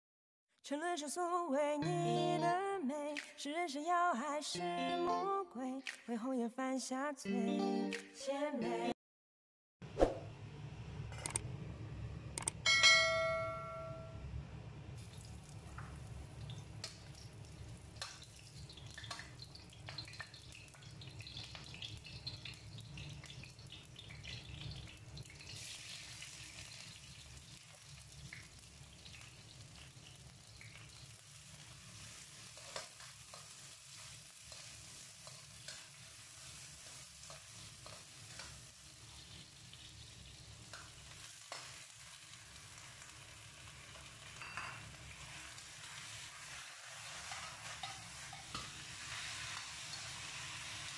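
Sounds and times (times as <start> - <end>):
bell-like ding: 12.6 - 14.2
vegetables sizzling in a wok: 14.9 - 50.9.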